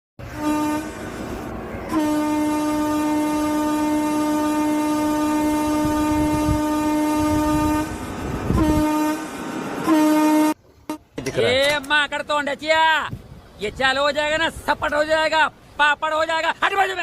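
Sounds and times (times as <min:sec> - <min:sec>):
train horn blast: 0:00.2 - 0:11.1
train rumbling on track: 0:00.2 - 0:17.0.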